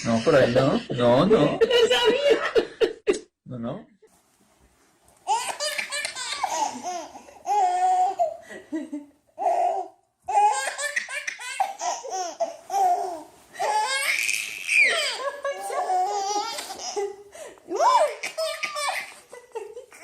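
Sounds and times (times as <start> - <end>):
baby laughing: 5.2 - 8.5, 9.4 - 20.0.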